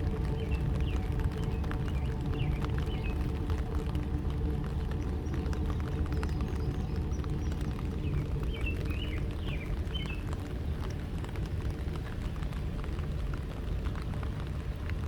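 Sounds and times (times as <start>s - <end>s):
low engine rumble: 0.0s - 15.0s
small birds chirping: 0.2s - 3.6s, 5.0s - 10.4s.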